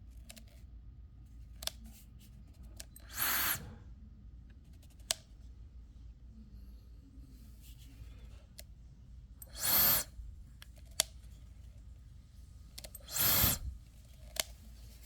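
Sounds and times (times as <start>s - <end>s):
hair dryer blowing: 13.0s - 13.7s.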